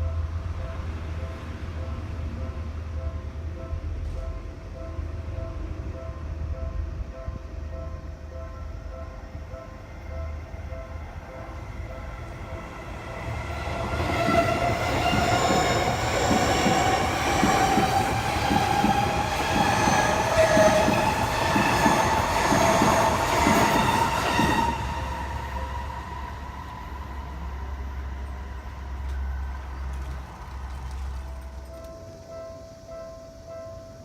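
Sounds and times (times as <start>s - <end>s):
crossing warning bell ringing: 0.0s - 29.8s
train wheels clattering over rail joints: 13.8s - 24.5s.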